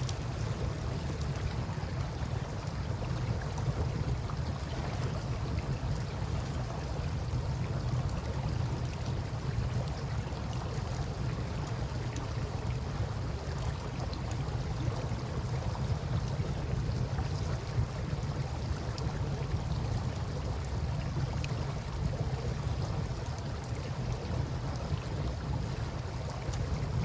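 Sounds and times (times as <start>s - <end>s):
campfire crackles: 0.0s - 27.0s.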